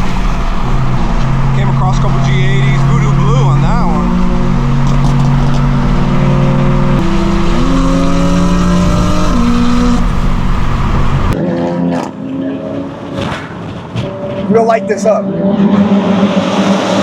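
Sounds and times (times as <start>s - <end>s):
loud car engine running: 0.0s - 11.4s.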